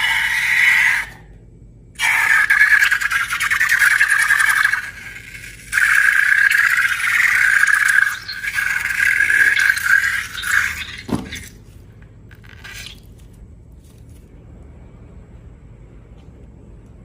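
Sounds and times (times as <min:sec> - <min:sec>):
air squealing from balloon: 0:00.0 - 0:01.3.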